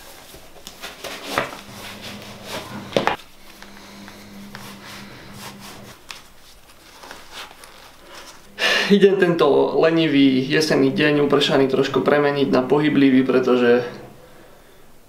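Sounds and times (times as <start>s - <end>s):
shoe scuffing on wooden floor: 1.0s - 6.4s
shoe lace rubbing swishes: 1.5s - 3.2s.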